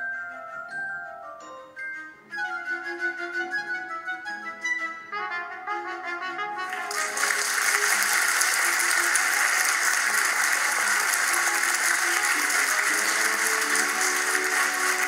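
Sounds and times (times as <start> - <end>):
light instrumental music: 0.0 - 15.0
audience applause: 6.7 - 15.0.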